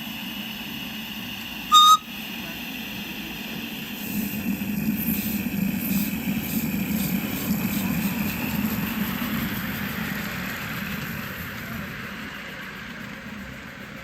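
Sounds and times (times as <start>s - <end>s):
steam locomotive chuffing: 0.0s - 14.0s
steam locomotive whistle: 1.7s - 2.2s.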